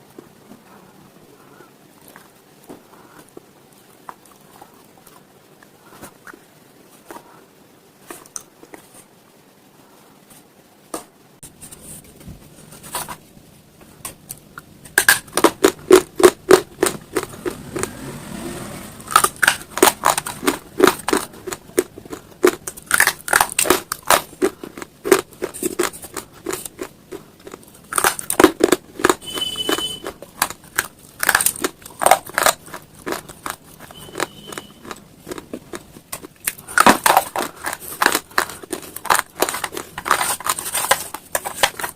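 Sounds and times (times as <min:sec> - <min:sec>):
stone being crunched and chewed: 0:30.0 - 0:41.9.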